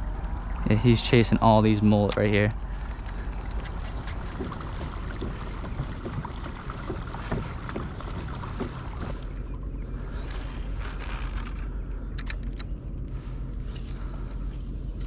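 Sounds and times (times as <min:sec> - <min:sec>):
water sloshing against kayak hull: 0:02.5 - 0:11.6.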